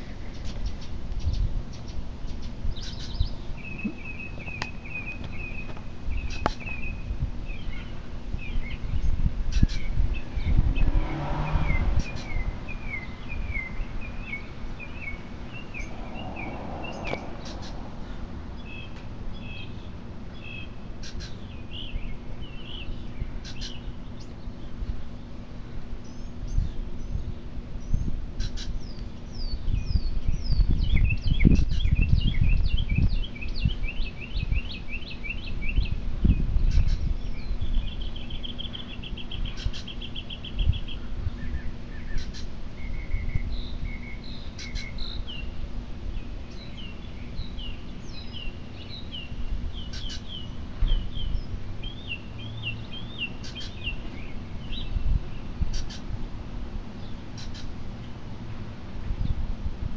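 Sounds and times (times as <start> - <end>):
steady low rumble: 0.0 - 59.9
birds chirping high notes: 0.7 - 25.4.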